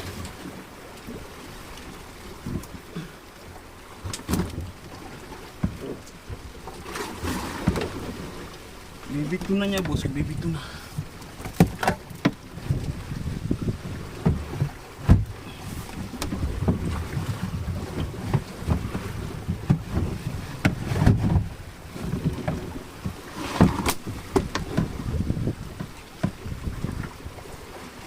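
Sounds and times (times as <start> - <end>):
waves: 0.0 - 28.0
knocks and thuds on boat: 2.3 - 28.0
wind buffeting microphone: 7.4 - 27.4.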